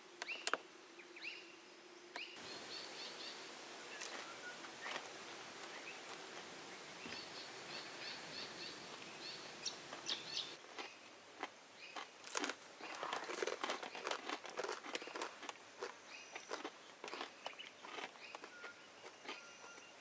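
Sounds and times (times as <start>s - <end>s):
bird chirping: 0.2s - 11.1s, 16.0s - 20.0s.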